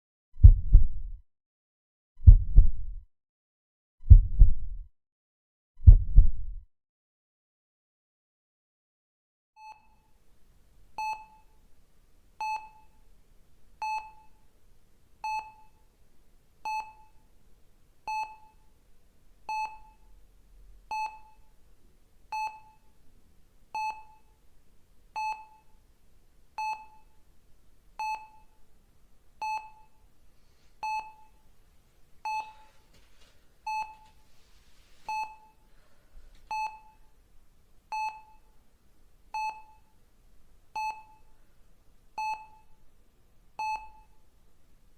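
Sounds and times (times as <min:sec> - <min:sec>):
patient monitor beeping: 0:12.4 - 0:12.9, 0:13.8 - 0:14.4, 0:15.2 - 0:15.8, 0:16.6 - 0:17.2, 0:18.1 - 0:18.6, 0:19.5 - 0:20.0, 0:20.9 - 0:21.4, 0:22.3 - 0:22.8, 0:23.8 - 0:24.3, 0:25.2 - 0:25.7, 0:26.6 - 0:27.1, 0:28.0 - 0:28.5, 0:29.4 - 0:30.0, 0:30.8 - 0:31.4, 0:32.2 - 0:32.7, 0:33.6 - 0:34.2, 0:35.1 - 0:35.6, 0:36.5 - 0:37.0, 0:37.9 - 0:38.4, 0:39.4 - 0:39.8, 0:40.8 - 0:41.3, 0:42.2 - 0:42.7, 0:43.6 - 0:44.2.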